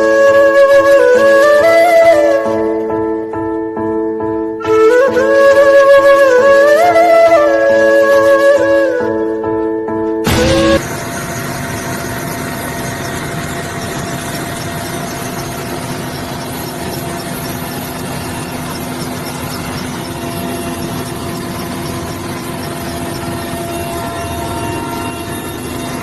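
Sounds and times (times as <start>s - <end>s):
music: 0.0s - 10.9s, 13.2s - 26.0s
helicopter engine and rotor: 10.2s - 26.0s.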